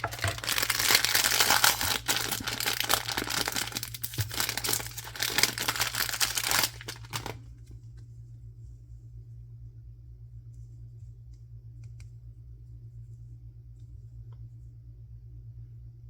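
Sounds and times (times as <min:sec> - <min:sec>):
packaging crinkling and tearing: 0:00.0 - 0:07.6
faint low hum: 0:00.0 - 0:16.0.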